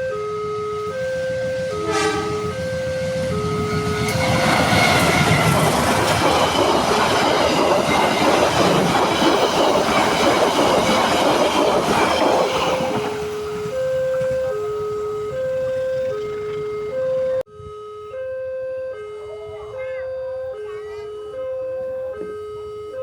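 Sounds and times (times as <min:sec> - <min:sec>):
level crossing alarm: 0:00.0 - 0:23.0
train wheels clattering: 0:03.4 - 0:14.5.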